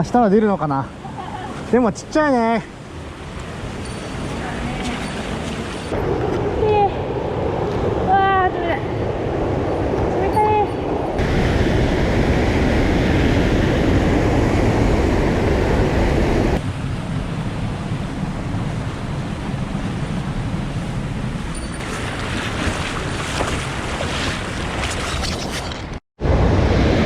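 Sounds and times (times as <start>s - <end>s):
mountain stream rushing: 0.0s - 6.5s, 21.8s - 26.0s.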